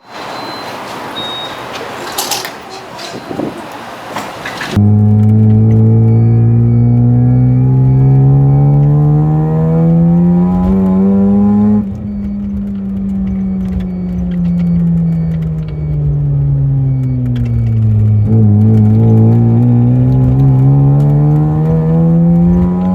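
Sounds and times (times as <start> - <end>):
rotary engine revving: 4.5 - 22.9.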